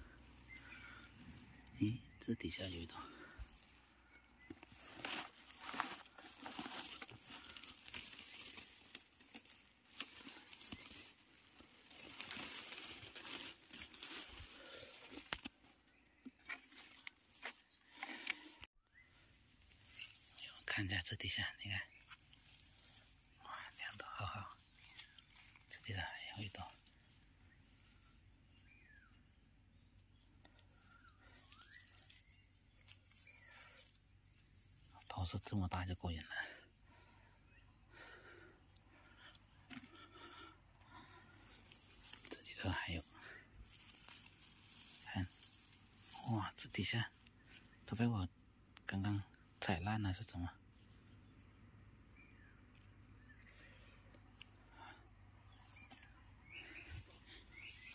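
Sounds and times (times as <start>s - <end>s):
bird chirp: 0.0s - 7.9s, 10.0s - 12.7s, 15.6s - 57.9s
twigs snapping: 4.2s - 18.7s, 19.6s - 20.6s, 22.0s - 25.8s, 29.9s - 35.1s, 38.7s - 46.4s
dry leaves rustling and crackling: 4.5s - 15.8s, 19.4s - 29.0s, 30.9s - 35.0s, 39.7s - 47.7s, 55.5s - 57.9s.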